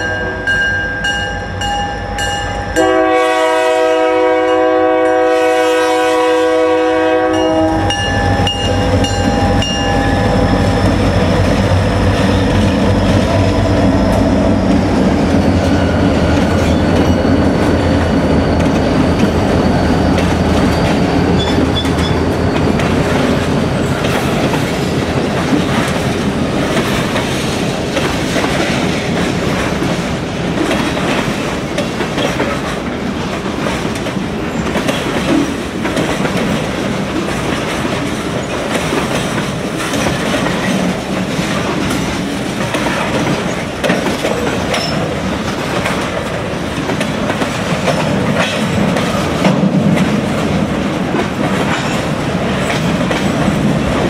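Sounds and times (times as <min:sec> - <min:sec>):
freight train wheels rumbling on rails: 0:00.0 - 0:54.0
clickety-clack of wheel clicks: 0:24.0 - 0:30.0, 0:30.6 - 0:54.0.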